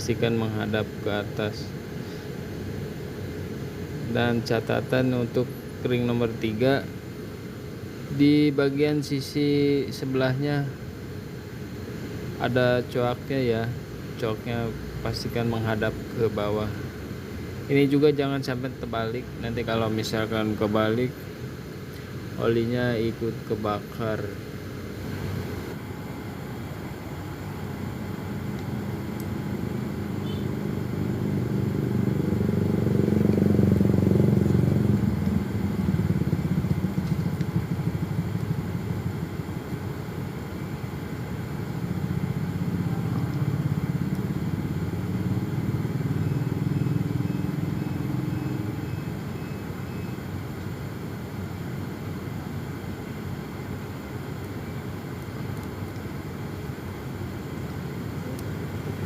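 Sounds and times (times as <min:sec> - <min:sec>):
motorcycle engine passing: 0:29.4 - 0:38.8, 0:41.8 - 0:48.9.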